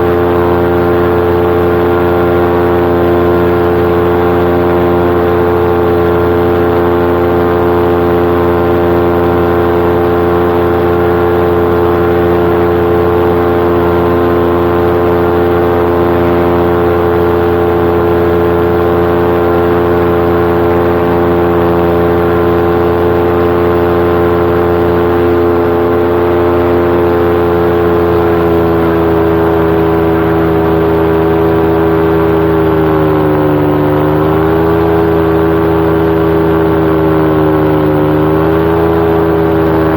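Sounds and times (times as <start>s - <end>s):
paramotor engine and propeller drone: 0.0s - 39.9s.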